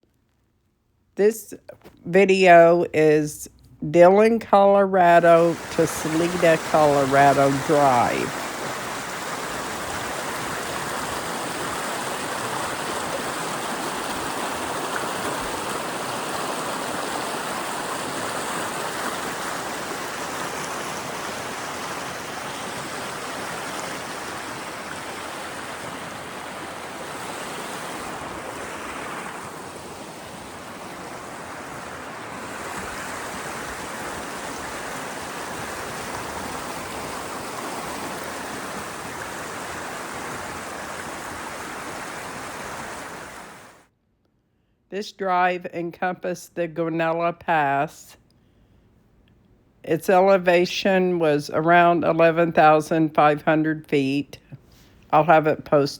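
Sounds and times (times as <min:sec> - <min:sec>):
mountain stream rushing: 0:05.2 - 0:43.9.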